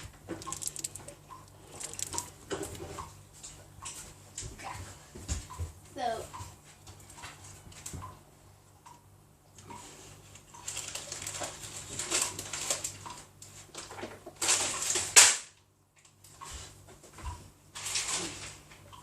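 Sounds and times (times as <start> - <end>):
rustling and handling noises: 0.0 - 5.3, 9.9 - 15.1
low steady hum: 0.0 - 7.3.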